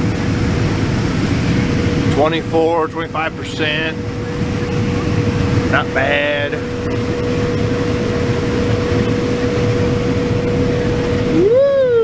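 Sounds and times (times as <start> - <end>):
combine harvester drone and whine: 0.0 - 12.0
person whooping: 11.3 - 12.0.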